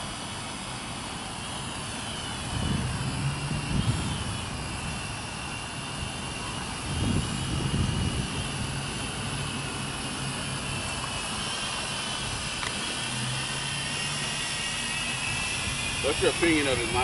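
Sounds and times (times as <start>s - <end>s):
drone propellers whining: 0.0s - 17.0s
wind rumbling on microphone: 2.2s - 9.8s.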